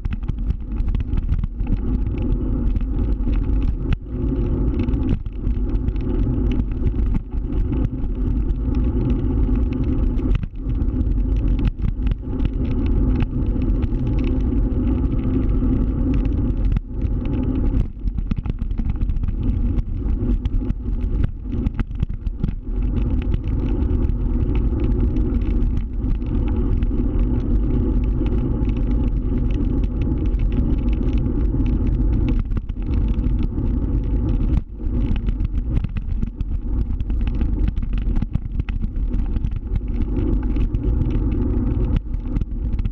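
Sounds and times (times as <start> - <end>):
road and wind noise: 0.0 - 42.9.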